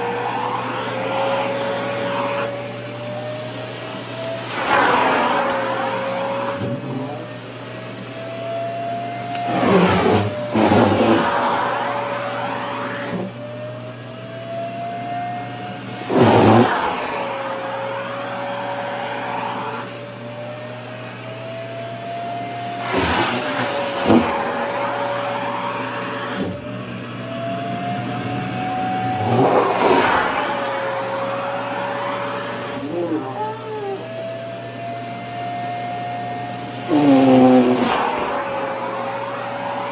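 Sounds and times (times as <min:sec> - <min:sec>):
vacuum cleaner motor humming: 0:00.0 - 0:39.9
fabric sucked against nozzle: 0:03.7 - 0:08.1, 0:09.3 - 0:13.3, 0:15.8 - 0:17.7, 0:22.6 - 0:24.9, 0:29.1 - 0:34.1, 0:36.3 - 0:39.1.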